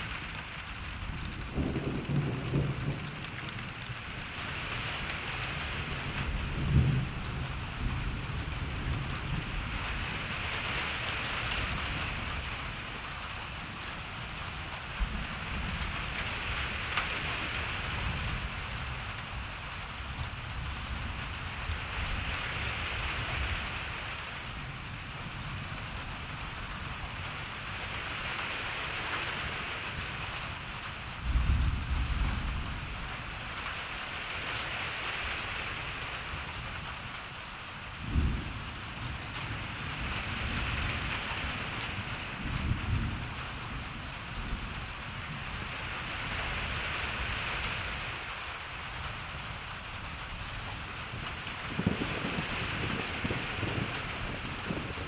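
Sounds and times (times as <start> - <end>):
thunder clap: 0.0 - 9.6
distant thunder rumble: 0.0 - 13.1
steady rain: 0.0 - 55.0.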